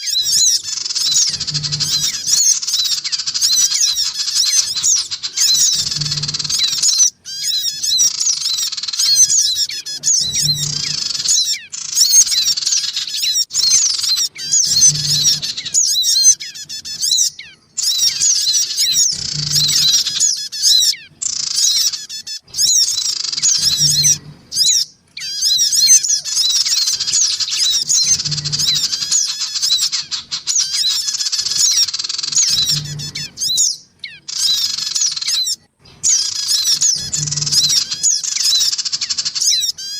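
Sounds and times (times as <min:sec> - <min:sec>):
birds chirping noisily: 0:00.0 - 0:39.9.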